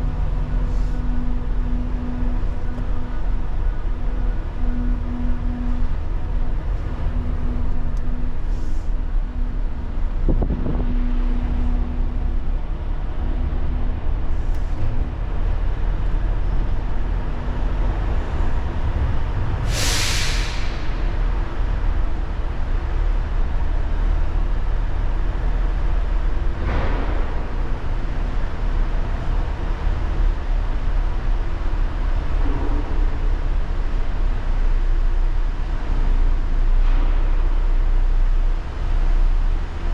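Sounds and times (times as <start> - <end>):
truck engine rumbling: 0.0 - 39.9
air brake hiss: 0.6 - 1.1, 8.5 - 9.0, 19.6 - 21.2.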